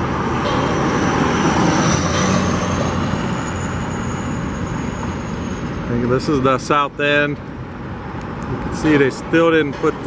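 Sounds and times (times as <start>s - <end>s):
thin high whine rising: 0.0s - 6.7s
road traffic engine noise: 0.0s - 10.0s.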